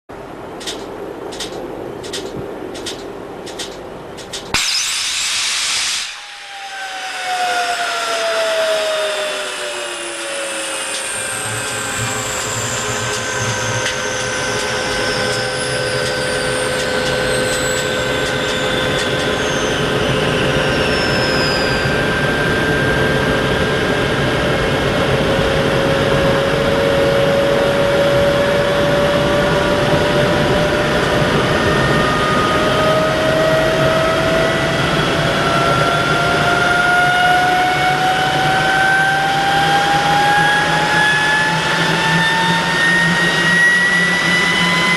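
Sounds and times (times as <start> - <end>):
jet engine rushing and whine: 0.1 - 44.9.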